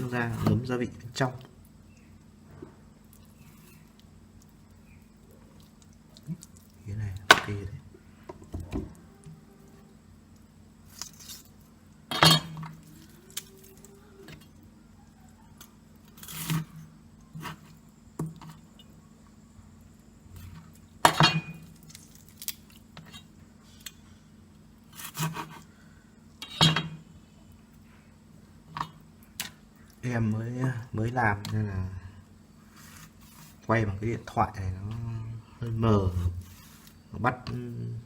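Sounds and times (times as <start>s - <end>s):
dishes and utensils clinking: 26.4s - 27.0s.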